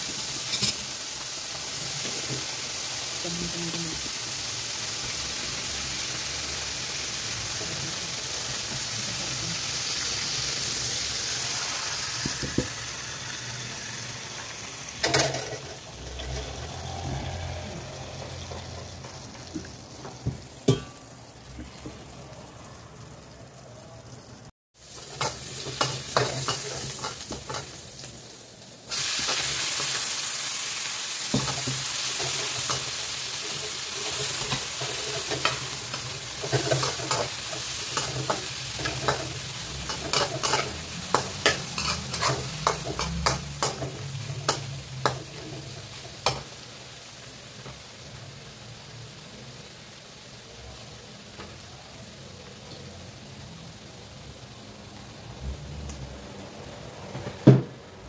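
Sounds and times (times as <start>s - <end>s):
oil sizzling in a wok: 0.0s - 58.0s
metal utensil clanking on pan: 0.4s - 0.9s, 15.0s - 16.7s, 20.0s - 21.0s, 25.1s - 27.8s, 33.6s - 46.5s
vegetables stirred with ladle: 31.4s - 46.5s.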